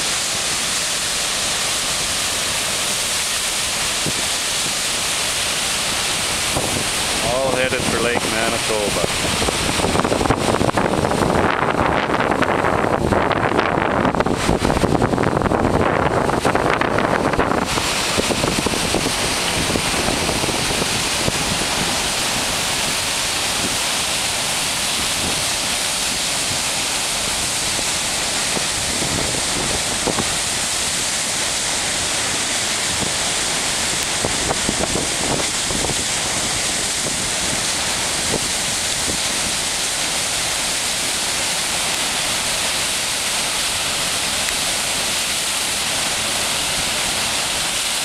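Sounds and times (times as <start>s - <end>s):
floodwater rushing: 0.0s - 48.0s
wind buffeting microphone: 3.7s - 40.1s.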